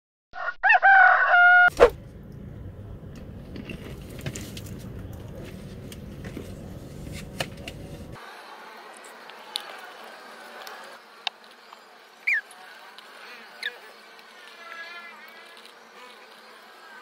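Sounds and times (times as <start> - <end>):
rooster crowing: 0.4 - 1.7.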